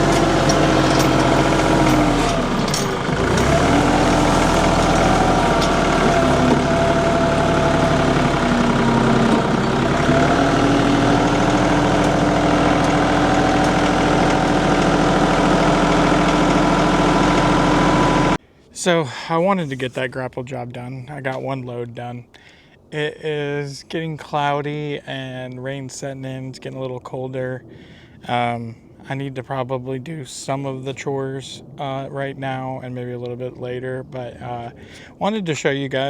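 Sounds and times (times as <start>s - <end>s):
tractor engine running: 0.0s - 18.4s.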